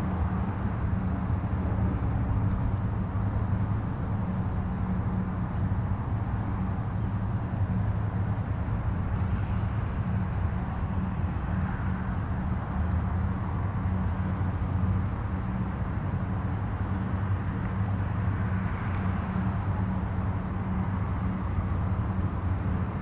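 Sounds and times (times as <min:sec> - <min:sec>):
distant highway traffic rumble: 0:00.0 - 0:23.0.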